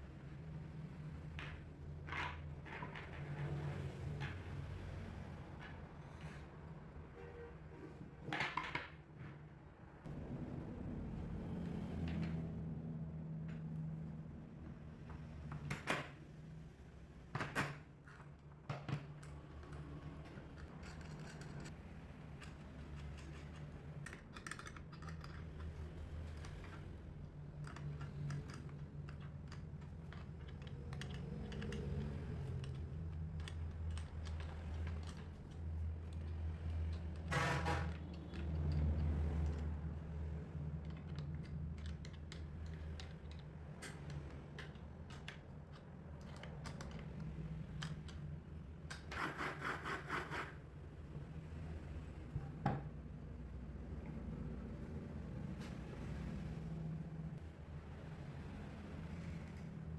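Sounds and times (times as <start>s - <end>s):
tools clicking and knocking: 17.6s - 26.8s, 27.5s - 39.7s, 40.8s - 49.4s.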